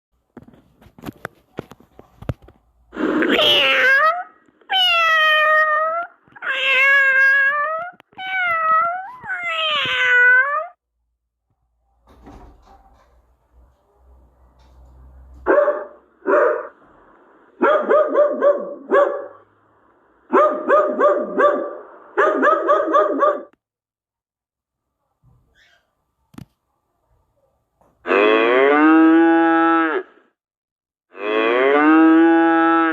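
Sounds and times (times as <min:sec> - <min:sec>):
cat meowing: 0:03.2 - 0:10.8.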